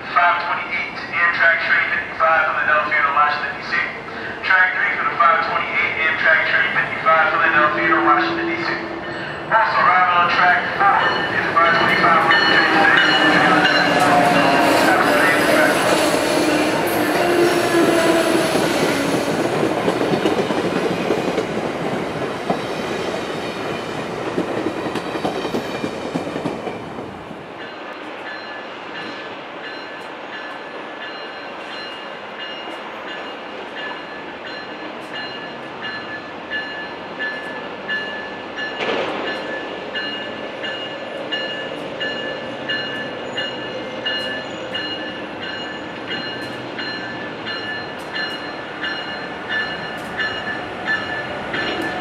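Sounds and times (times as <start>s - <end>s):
train wheels rushing on rail: 0.0s - 52.0s
locomotive bell ringing: 5.4s - 16.0s, 27.6s - 52.0s.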